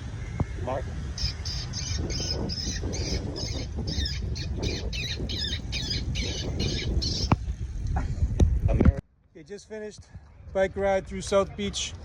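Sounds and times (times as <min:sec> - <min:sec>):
low wind rumble: 0:00.0 - 0:12.0
recorded bird squawks from speaker: 0:00.5 - 0:07.3.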